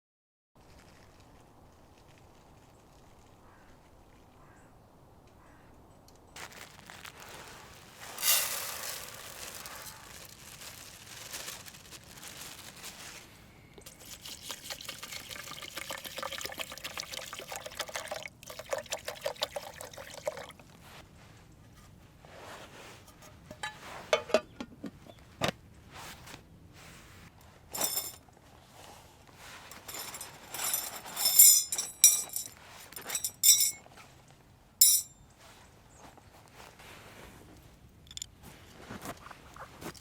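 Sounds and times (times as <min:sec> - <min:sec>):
water pouring into container: 0:13.9 - 0:20.6.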